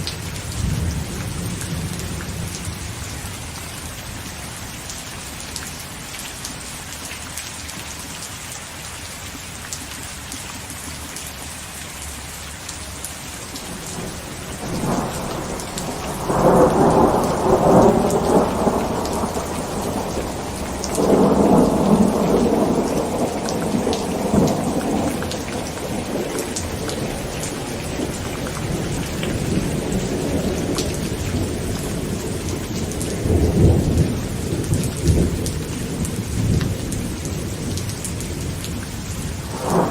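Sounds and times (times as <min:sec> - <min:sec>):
heavy rain on a tent: 0:00.0 - 0:39.9
rolling thunder: 0:00.2 - 0:03.1, 0:13.6 - 0:39.9.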